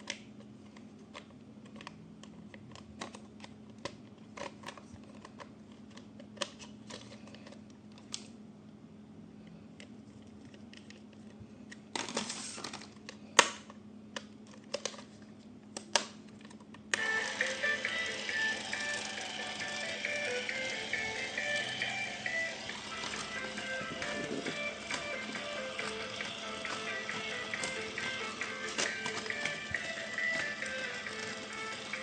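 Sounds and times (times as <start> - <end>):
steady low hum: 15.2 - 32.0
music: 17.0 - 32.0
packaging rustling: 23.0 - 32.0
plastic toy parts clicking: 23.0 - 32.0.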